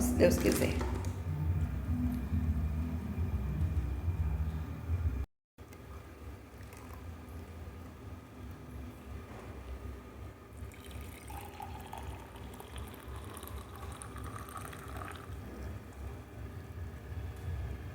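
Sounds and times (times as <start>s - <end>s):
liquid poured into cup: 6.5s - 7.4s, 10.6s - 16.2s.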